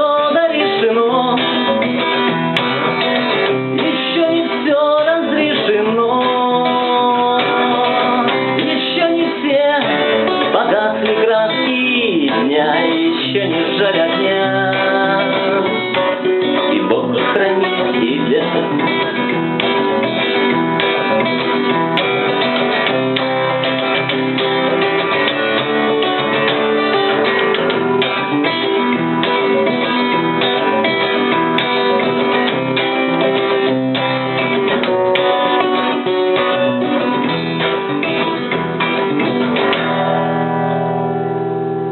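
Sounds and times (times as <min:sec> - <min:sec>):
acoustic guitar strumming: 0:00.0 - 0:41.9.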